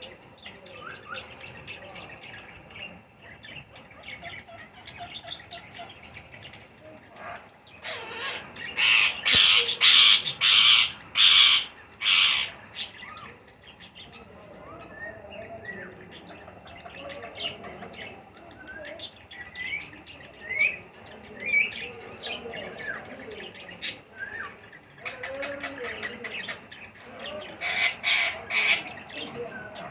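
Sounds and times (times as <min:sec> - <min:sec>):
parakeets soft chirps: 0:00.0 - 0:17.4
parakeets rasping squawks: 0:07.2 - 0:13.6, 0:23.8 - 0:29.9.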